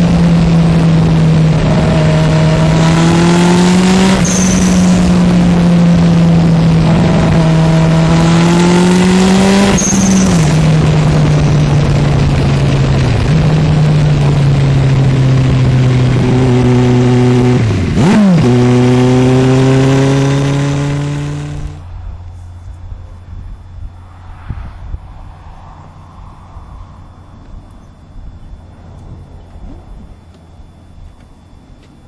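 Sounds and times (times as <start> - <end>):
motorcycle engine running hard: 0.0 - 24.0
short high whistle: 4.2 - 5.1, 9.7 - 10.6.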